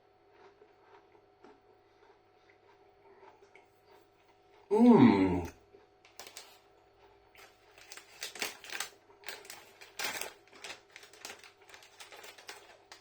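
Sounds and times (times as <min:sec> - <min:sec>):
light clicks and crinkling: 0:06.0 - 0:13.0.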